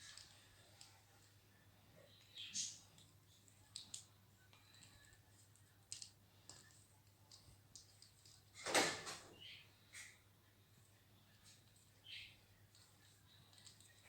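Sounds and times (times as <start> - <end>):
parrot playing with toys: 2.6 - 9.2
light clicks and taps: 2.9 - 8.5, 12.7 - 14.0.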